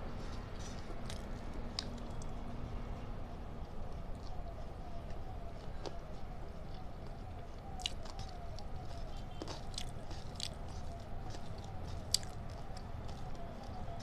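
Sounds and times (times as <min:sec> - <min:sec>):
person chewing food: 0:00.6 - 0:02.4, 0:07.8 - 0:13.8.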